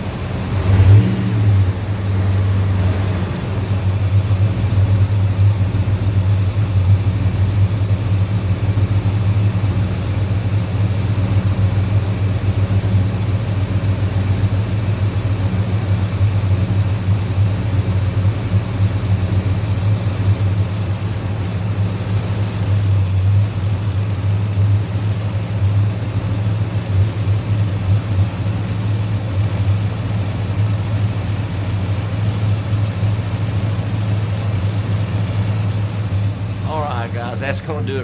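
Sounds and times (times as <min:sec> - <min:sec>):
truck engine idling: 0:00.0 - 0:38.0.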